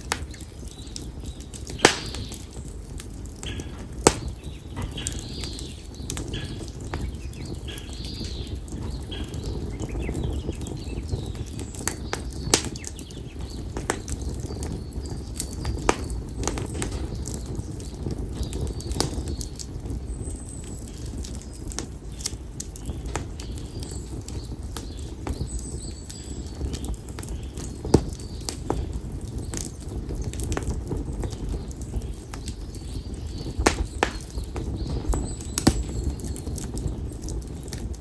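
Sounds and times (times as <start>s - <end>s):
fire crackles and pops: 0.0s - 38.0s
firewood burning: 0.0s - 38.0s
bird calling: 3.4s - 11.3s.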